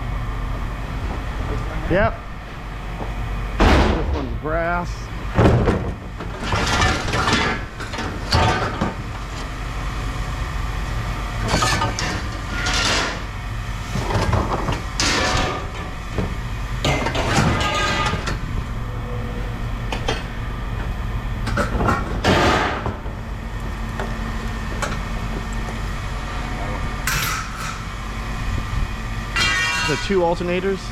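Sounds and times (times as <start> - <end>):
low mechanical hum: 0.0 - 30.9
loud knocks: 3.6 - 4.3
scrap metal clanking: 11.4 - 13.3, 16.8 - 18.4, 27.0 - 27.9, 29.4 - 30.3.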